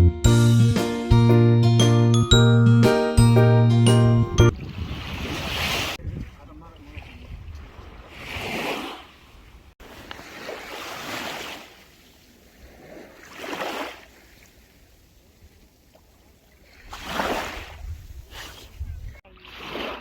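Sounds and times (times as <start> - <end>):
sea waves breaking on sand: 4.5 - 15.5, 16.6 - 18.6, 19.3 - 20.0.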